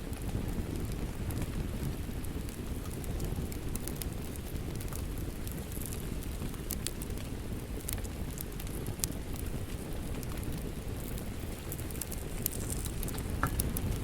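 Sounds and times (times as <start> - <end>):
burning wood popping and snapping: 0.0 - 14.0
low rumble of flames: 0.0 - 14.0.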